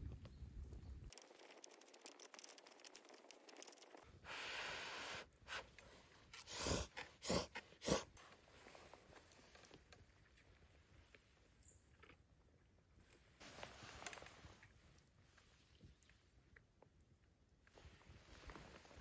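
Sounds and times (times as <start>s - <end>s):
crackling and rustling: 0.1s - 4.2s, 11.9s - 17.0s.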